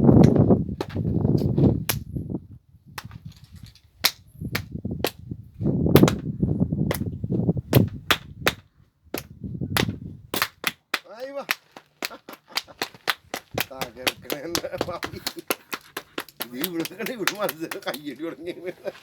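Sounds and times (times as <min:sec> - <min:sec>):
wind rumbling on microphone: 0:00.0 - 0:10.6, 0:13.2 - 0:15.3
sharp cracks: 0:06.0 - 0:06.3, 0:09.2 - 0:18.2.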